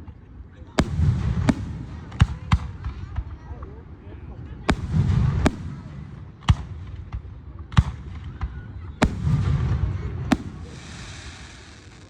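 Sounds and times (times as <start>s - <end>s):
faint fireworks pops: 0.0s - 3.7s, 4.6s - 12.0s
fireworks bangs: 0.8s - 3.2s, 4.7s - 12.0s
hissing crackle: 9.0s - 12.0s.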